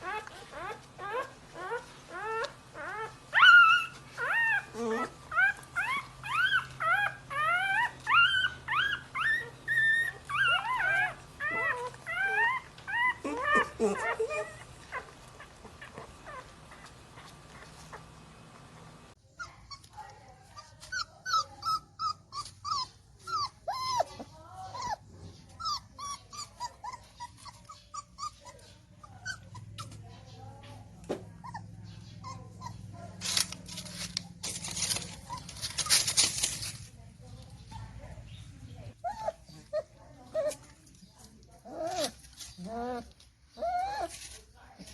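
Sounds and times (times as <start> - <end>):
puppy whimpering: 0.0 - 30.2, 31.3 - 36.5, 38.9 - 44.9
rustling noise: 33.0 - 37.6.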